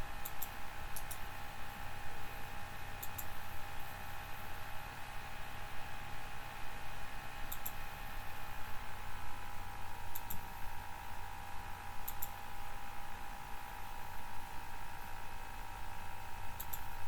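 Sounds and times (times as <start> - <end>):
steady electrical hum: 0.0 - 17.0
computer mouse double-clicks: 0.2 - 1.2, 3.0 - 3.3, 7.5 - 7.8, 10.1 - 10.4, 12.0 - 12.4, 16.6 - 16.9.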